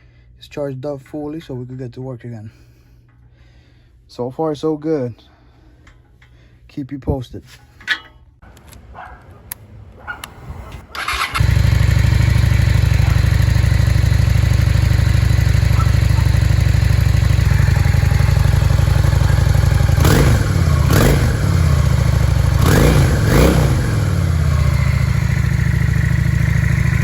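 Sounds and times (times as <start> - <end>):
motorcycle engine idling and revving: 11.0 - 27.0.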